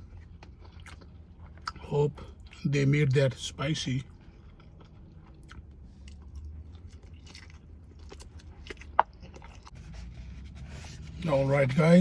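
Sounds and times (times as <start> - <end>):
person chewing food: 0.0 - 2.6, 4.1 - 10.1.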